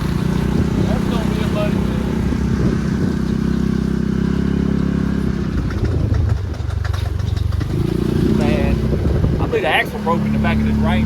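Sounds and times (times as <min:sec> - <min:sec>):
utility vehicle engine running: 0:00.0 - 0:11.0
popping knocks from vehicle rear: 0:05.6 - 0:08.0.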